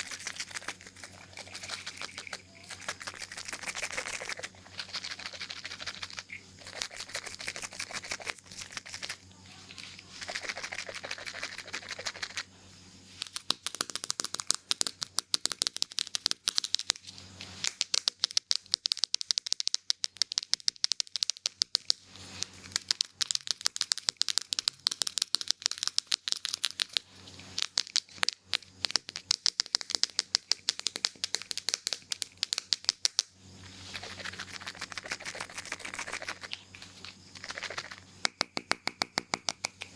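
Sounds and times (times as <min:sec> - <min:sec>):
scissors snipping hair: 0:00.0 - 0:12.4, 0:13.2 - 0:19.0
hissy rustling strokes: 0:00.0 - 0:13.2, 0:33.6 - 0:38.2.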